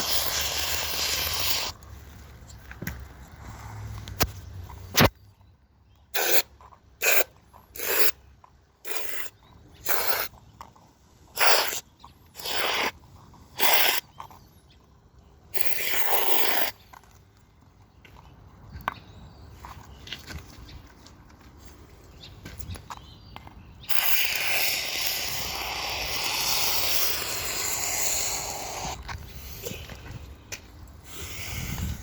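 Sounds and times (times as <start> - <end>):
short hissing spray bursts: 0.0 - 1.7, 6.2 - 6.4, 8.9 - 9.3, 11.4 - 11.8, 12.4 - 12.9, 13.6 - 14.0, 23.9 - 29.0.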